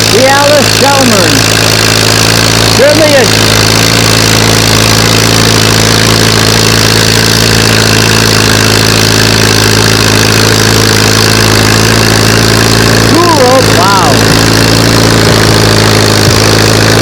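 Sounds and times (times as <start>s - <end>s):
tractor engine under load: 0.0s - 17.0s.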